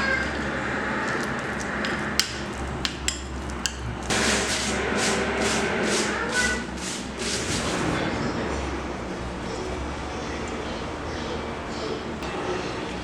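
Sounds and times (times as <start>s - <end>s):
scraping strokes: 4.1s - 8.0s.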